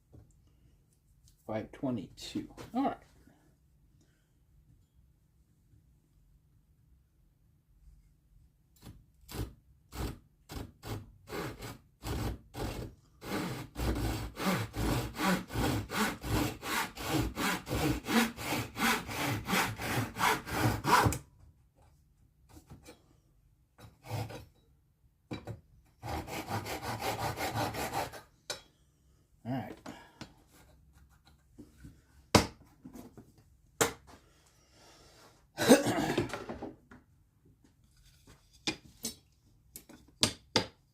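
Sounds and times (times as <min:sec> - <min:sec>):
hand saw cutting wood: 0:09.3 - 0:21.3, 0:24.0 - 0:24.5, 0:26.0 - 0:28.3.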